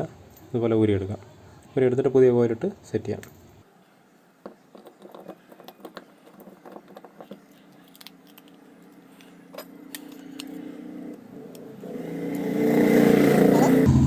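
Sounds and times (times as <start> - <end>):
engine hum: 8.9 - 14.0.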